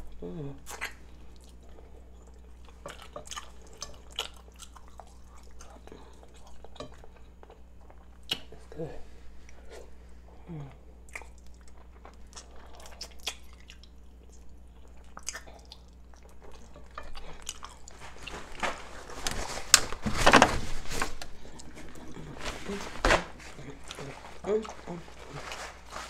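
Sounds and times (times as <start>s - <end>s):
chewing chicken with mouth clicks: 0.6s - 8.6s, 11.0s - 18.0s
dense rustling noise: 18.0s - 21.4s, 22.3s - 23.6s.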